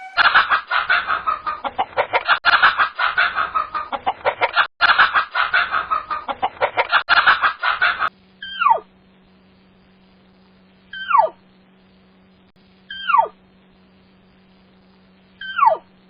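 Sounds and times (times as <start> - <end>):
chickens clucking: 0.0 - 8.1.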